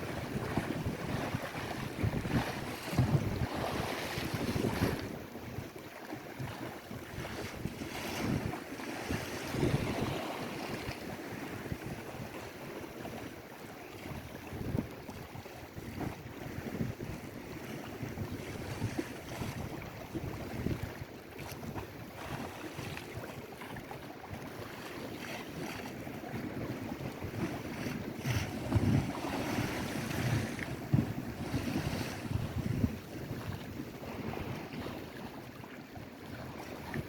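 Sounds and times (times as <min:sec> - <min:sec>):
wind gusting on microphone: 0:00.0 - 0:05.7, 0:06.5 - 0:12.6, 0:14.0 - 0:23.4, 0:26.2 - 0:35.4
waves washing on shore: 0:00.0 - 0:37.0.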